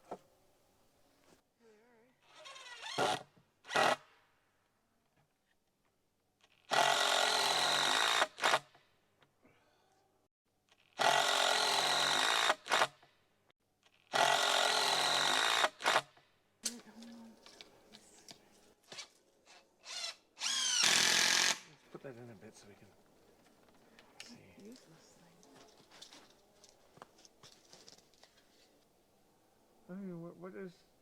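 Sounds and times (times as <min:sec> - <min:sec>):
power drill driving screws into wood: 0:02.3 - 0:04.1, 0:06.6 - 0:08.8, 0:10.8 - 0:13.0, 0:14.1 - 0:16.2, 0:19.8 - 0:21.7.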